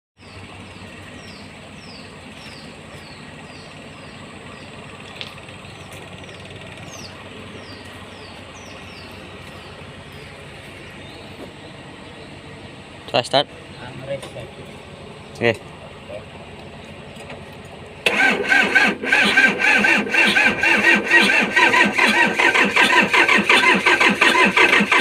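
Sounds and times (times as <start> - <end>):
bird chirping: 0.2 - 17.3
low background hum: 0.2 - 19.6.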